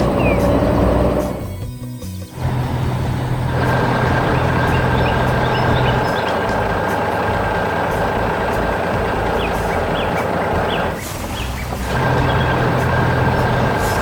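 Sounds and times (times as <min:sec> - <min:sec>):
high rising chirps: 0:00.0 - 0:01.6
excavator engine running: 0:00.0 - 0:14.0
low hum: 0:02.3 - 0:14.0.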